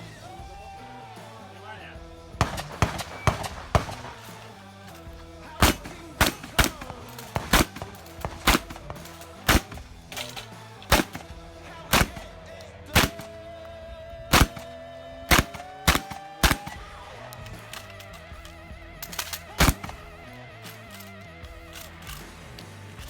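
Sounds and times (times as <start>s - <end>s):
background music: 0.0s - 23.0s
shotgun shots: 2.4s - 13.5s, 14.3s - 18.0s, 19.0s - 20.2s.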